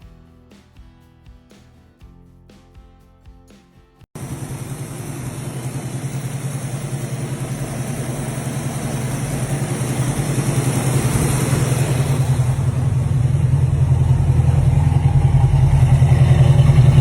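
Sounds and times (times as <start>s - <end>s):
car engine running: 4.2s - 17.0s.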